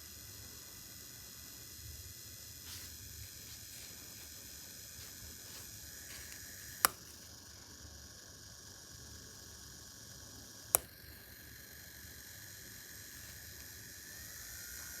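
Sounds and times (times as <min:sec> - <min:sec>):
sharp click: 0:05.5 - 0:07.2, 0:10.6 - 0:11.3.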